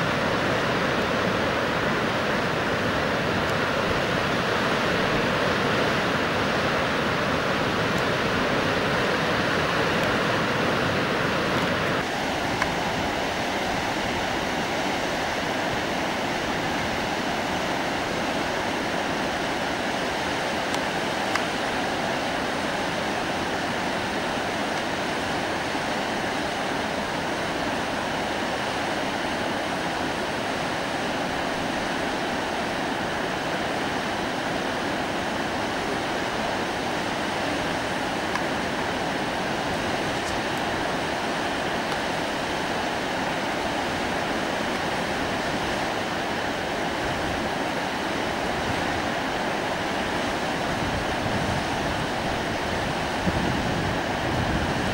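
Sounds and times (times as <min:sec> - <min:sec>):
river water rushing: 0:00.0 - 0:54.9.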